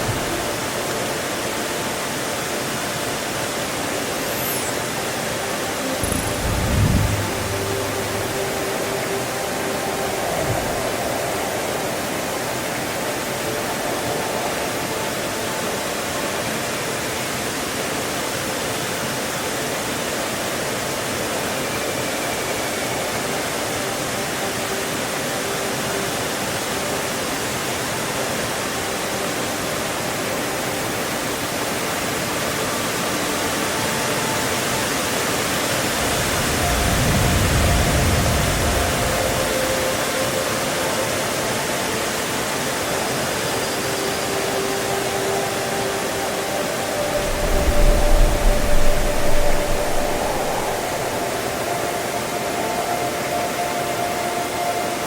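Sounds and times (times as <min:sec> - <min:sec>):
waterfall roaring: 0:00.0 - 0:55.0
low rumble: 0:06.0 - 0:08.6, 0:47.2 - 0:51.4.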